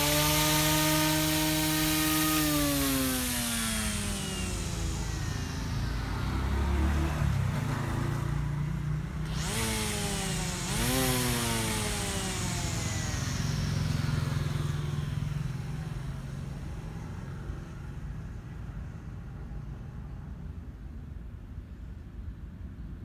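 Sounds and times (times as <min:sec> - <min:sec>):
steady low hum: 0:00.0 - 0:07.3, 0:09.2 - 0:15.4
electric grass trimmer motor whirring: 0:00.0 - 0:08.5, 0:09.1 - 0:15.7.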